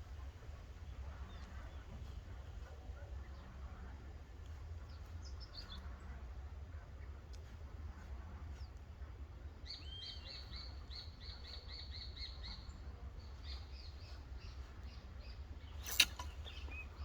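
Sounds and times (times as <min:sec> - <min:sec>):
bird chirping: 0:09.6 - 0:17.0.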